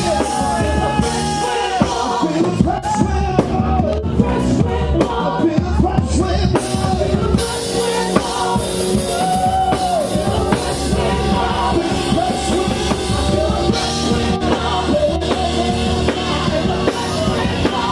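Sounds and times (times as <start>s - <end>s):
drum kit: 0.0s - 17.9s
live band playing: 0.0s - 17.9s
person singing: 0.0s - 17.9s.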